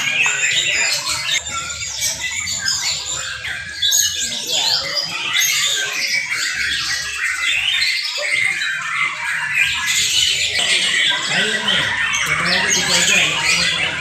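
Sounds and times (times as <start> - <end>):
birds singing whistles and trills: 0.0 - 14.0.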